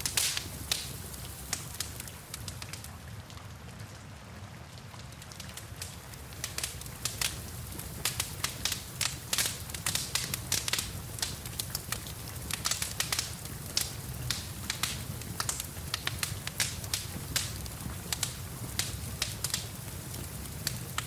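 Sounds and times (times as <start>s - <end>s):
wood fire crackling and popping: 0.0s - 4.0s, 4.6s - 21.0s.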